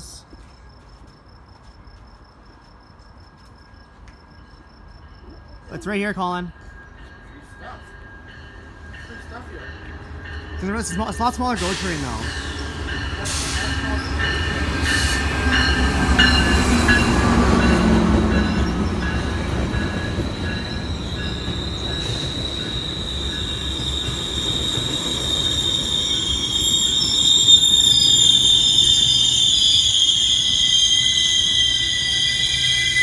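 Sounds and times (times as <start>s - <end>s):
train brakes squealing: 6.6s - 33.0s
diesel locomotive rumble: 9.0s - 26.3s.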